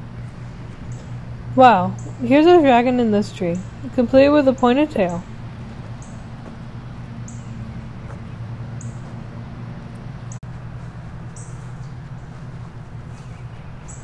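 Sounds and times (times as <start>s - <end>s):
steady low hum: 0.0s - 14.0s
small bird chirping: 13.1s - 14.0s.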